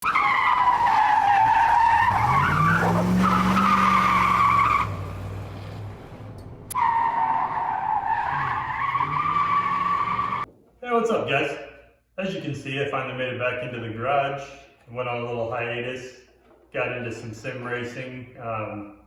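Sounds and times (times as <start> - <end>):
tires squealing: 0.0 - 10.5
car engine running: 2.1 - 6.8.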